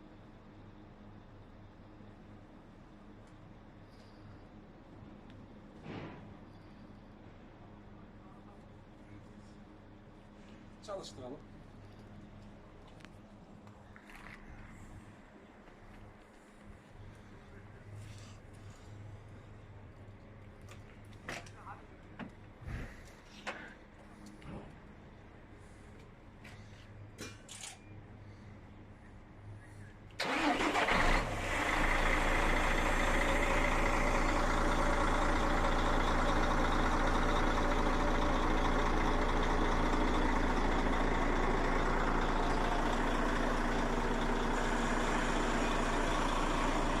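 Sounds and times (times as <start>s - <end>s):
truck starter cranking: 30.2s - 31.6s
truck engine idling: 30.2s - 47.0s.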